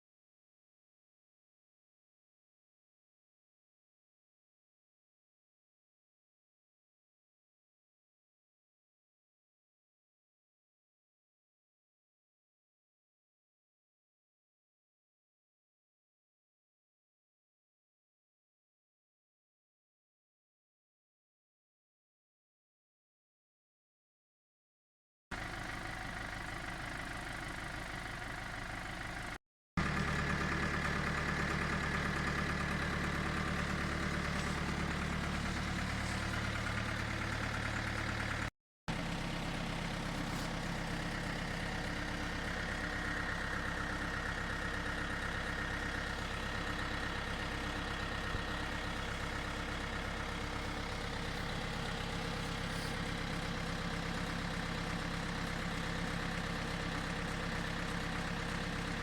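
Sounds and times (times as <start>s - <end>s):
engine running steadily: 25.4s - 59.0s.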